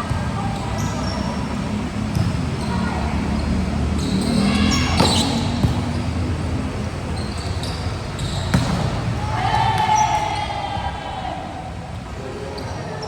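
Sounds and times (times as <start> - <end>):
hubbub of players and onlookers: 0.0 - 13.0
ball struck and bouncing: 8.5 - 9.0.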